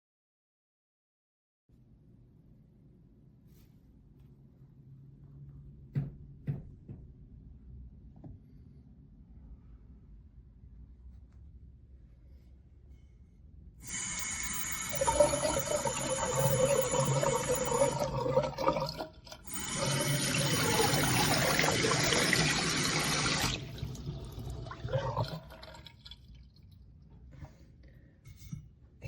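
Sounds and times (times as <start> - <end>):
faucet water running into sink: 13.8 - 26.6.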